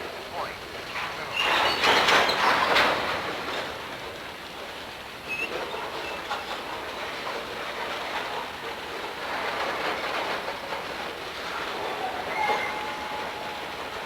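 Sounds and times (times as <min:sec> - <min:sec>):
wheels clattering over track joints: 0:00.7 - 0:14.0
high train wheel squeal: 0:01.0 - 0:03.8, 0:05.2 - 0:06.9, 0:09.3 - 0:14.0.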